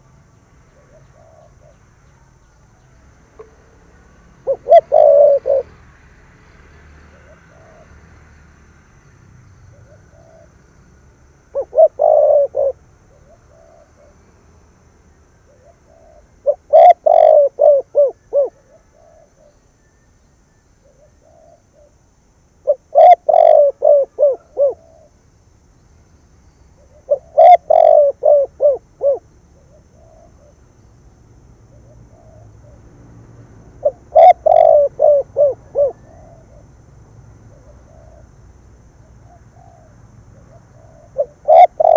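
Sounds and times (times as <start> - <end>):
dove cooing: 0.7 - 1.8, 4.4 - 5.8, 7.1 - 7.9, 9.7 - 10.6, 11.5 - 14.3, 15.4 - 19.6, 20.8 - 25.2, 26.8 - 30.6, 31.6 - 32.9, 33.8 - 36.8, 37.4 - 38.4, 39.0 - 41.9.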